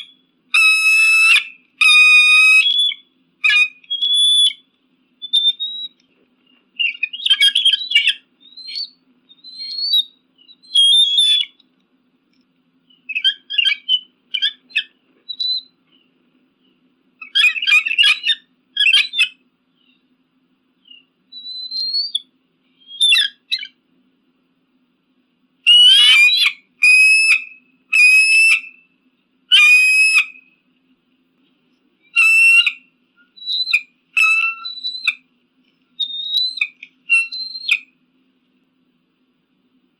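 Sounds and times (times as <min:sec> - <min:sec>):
eagle calling: 0:00.0 - 0:11.6, 0:12.9 - 0:16.0, 0:17.2 - 0:20.0, 0:20.8 - 0:23.8, 0:25.7 - 0:28.9, 0:29.5 - 0:30.5, 0:32.0 - 0:35.3, 0:36.0 - 0:38.0.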